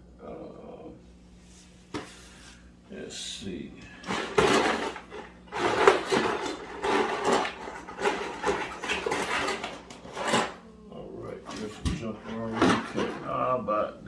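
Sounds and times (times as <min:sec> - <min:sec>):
tools clattering on a workbench: 0:04.0 - 0:10.6, 0:11.5 - 0:13.4.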